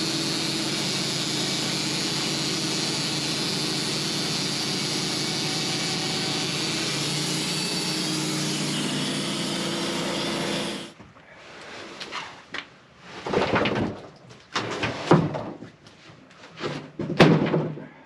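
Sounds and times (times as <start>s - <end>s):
sawmill machine running: 0.0s - 11.0s.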